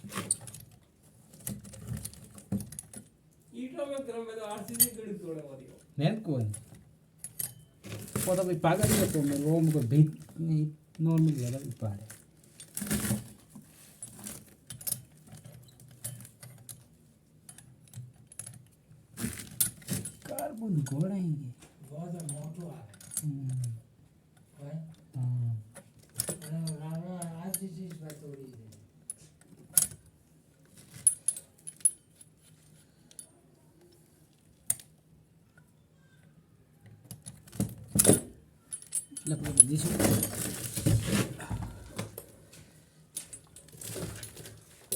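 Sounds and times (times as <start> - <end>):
metallic clinks and taps: 6.5 - 7.8, 37.1 - 40.4.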